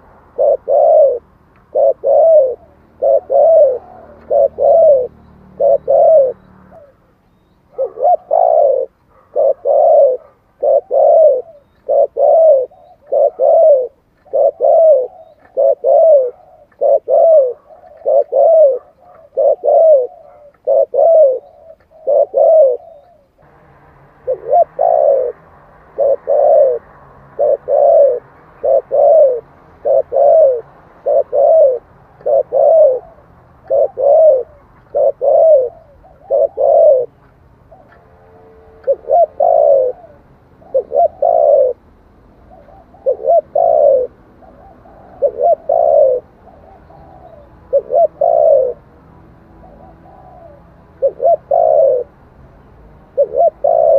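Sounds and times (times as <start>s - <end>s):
dove cooing: 0.0s - 48.9s, 49.5s - 52.2s, 53.1s - 53.9s.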